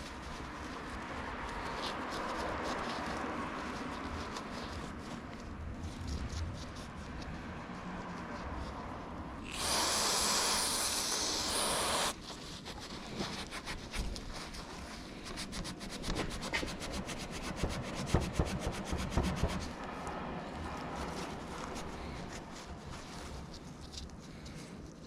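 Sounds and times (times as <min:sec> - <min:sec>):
scratchy rubbing strokes: 0:08.2 - 0:24.9
aerosol spray hissing: 0:09.4 - 0:12.2.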